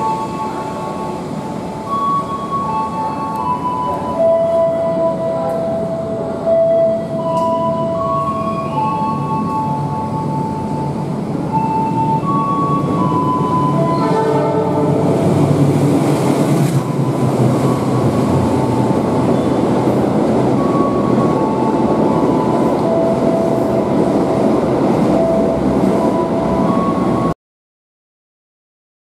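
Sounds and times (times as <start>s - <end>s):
rumble of train wheels on rails: 0.0s - 27.3s.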